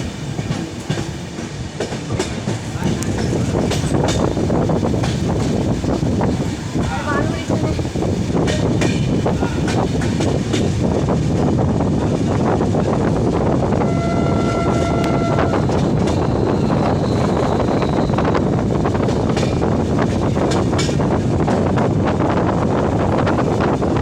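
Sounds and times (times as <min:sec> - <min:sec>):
rushing wind: 0:00.0 - 0:24.0
short horn tone: 0:13.8 - 0:15.8.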